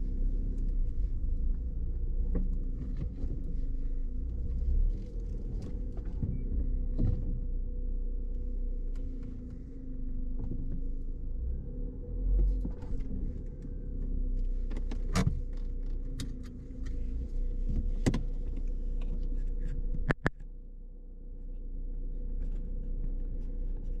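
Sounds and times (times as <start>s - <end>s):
car engine and road hum: 0.0s - 24.0s
sharp clicks and knocks: 19.0s - 20.5s.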